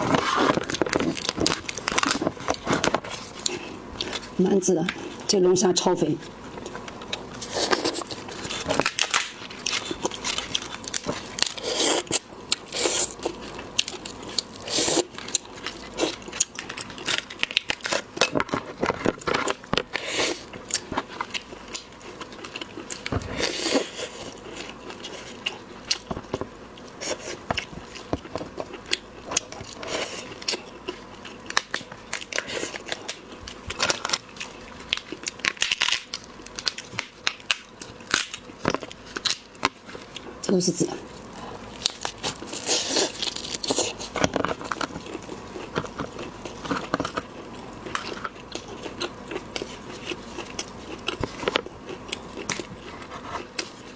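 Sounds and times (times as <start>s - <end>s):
shellfish shells cracking: 7.0s - 12.2s, 31.4s - 39.8s
chewing: 41.0s - 53.9s.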